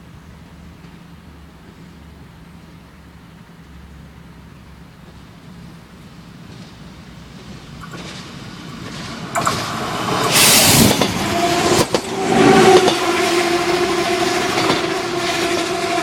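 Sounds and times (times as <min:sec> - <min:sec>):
diesel train running: 0:00.0 - 0:16.0
loud hiss: 0:08.2 - 0:16.0
two-note train whine: 0:08.6 - 0:16.0.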